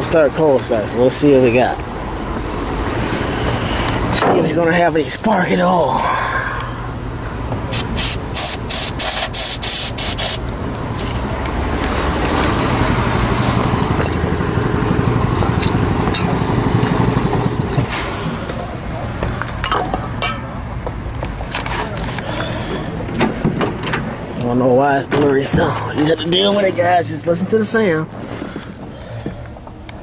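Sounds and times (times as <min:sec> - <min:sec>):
aerosol spray bursts: 0:07.7 - 0:10.4.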